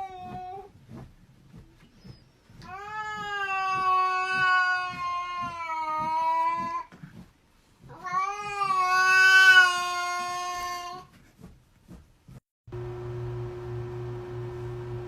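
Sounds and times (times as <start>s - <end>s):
cat yowling: 8.0s - 11.0s.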